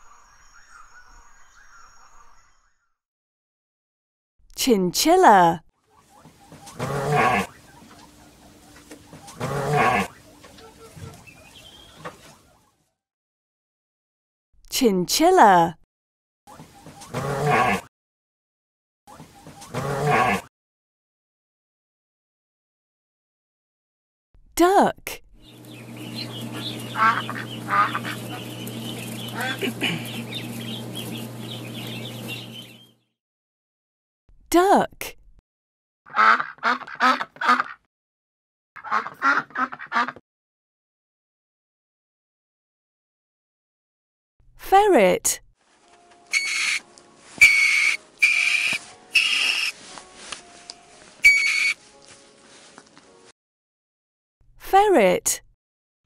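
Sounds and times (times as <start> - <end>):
ducklings peeping: 10.1 - 12.4, 25.4 - 32.9, 46.3 - 46.8, 47.4 - 49.8, 51.2 - 51.8
steady low hum: 25.4 - 32.9
ferret whistling squeaks: 46.3 - 46.8, 47.4 - 49.8, 51.2 - 51.8.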